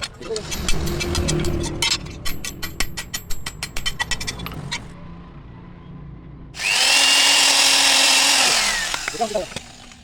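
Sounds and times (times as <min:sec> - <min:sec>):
power tool whine: 0:06.6 - 0:10.0.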